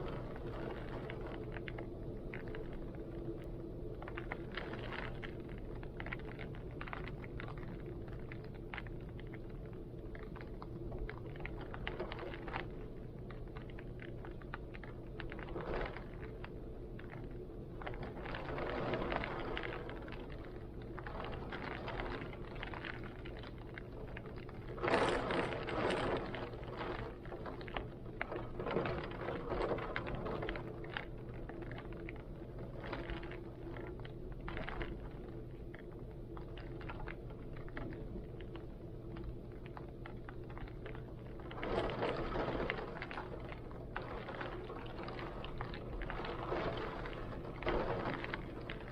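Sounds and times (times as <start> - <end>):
steady low hum: 0.0 - 48.9
heavy rain falling: 41.6 - 48.9.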